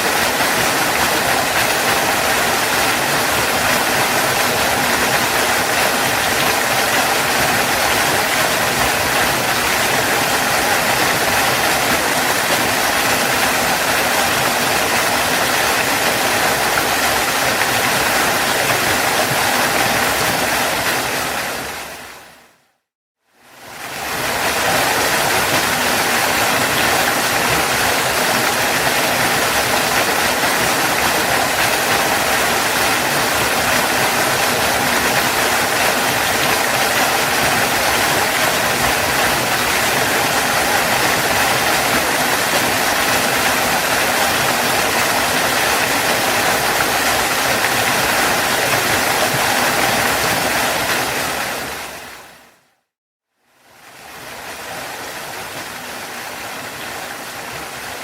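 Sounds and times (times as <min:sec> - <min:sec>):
waterfall rushing: 0:00.0 - 0:22.6, 0:23.5 - 0:52.6.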